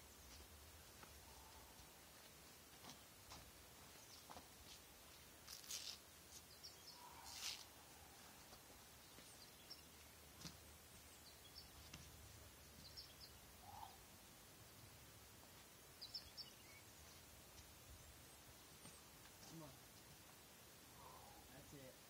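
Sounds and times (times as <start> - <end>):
faint bird chirps: 6.5 - 10.2, 12.8 - 14.1, 16.0 - 17.2, 20.9 - 21.9.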